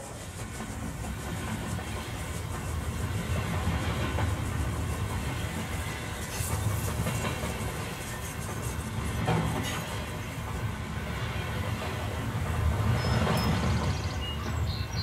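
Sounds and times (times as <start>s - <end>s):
train coaches rumbling: 0.0s - 15.0s
wheels clicking over rail joints: 0.2s - 10.7s.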